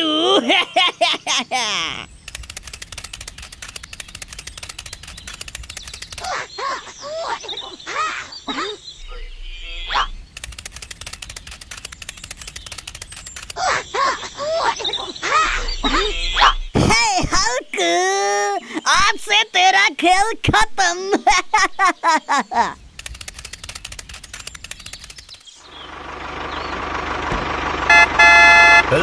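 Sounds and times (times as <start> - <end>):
high squeaky chirps: 1.9 - 16.8
cartoon rattling clicks: 2.2 - 6.4, 10.3 - 13.7, 22.9 - 25.6.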